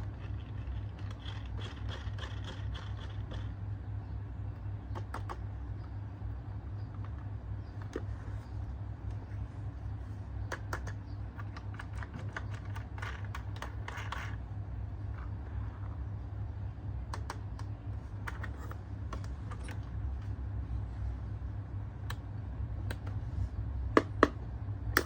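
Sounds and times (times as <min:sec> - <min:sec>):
steady low hum: 0:00.0 - 0:25.0
toys clicking and knocking: 0:10.5 - 0:14.4.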